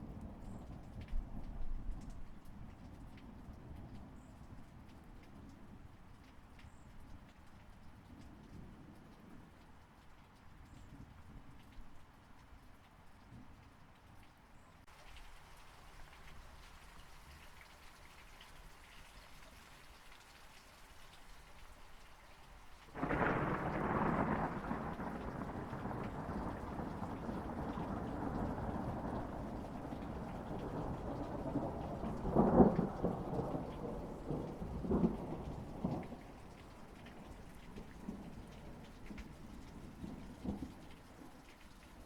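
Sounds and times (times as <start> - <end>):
steady rain: 0.0 - 42.0
thunder rumbling and cracking: 23.0 - 40.8.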